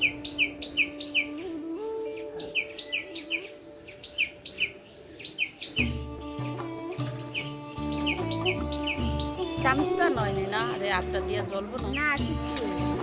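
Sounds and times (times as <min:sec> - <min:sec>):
background music with held tones: 0:00.0 - 0:13.0
bird chirping: 0:00.0 - 0:13.0
bass line: 0:07.8 - 0:13.0.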